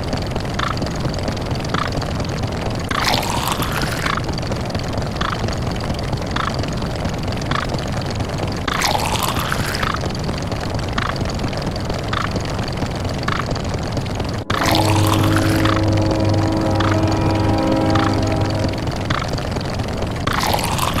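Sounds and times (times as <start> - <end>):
dense blurred sound effects: 14.4 - 19.5
falling pitch sound effect: 14.4 - 19.5
short sound effect: 14.4 - 19.5.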